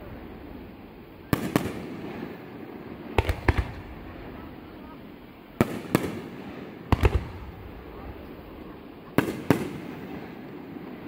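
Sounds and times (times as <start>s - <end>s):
firework shells bursting: 3.2s - 4.4s, 5.6s - 8.5s.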